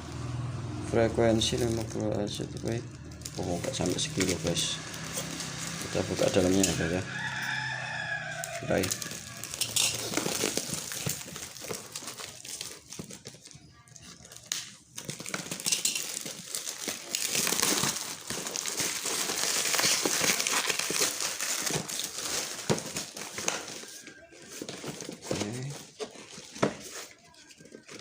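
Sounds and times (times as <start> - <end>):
packaging crinkling and rustling: 1.2 - 28.0.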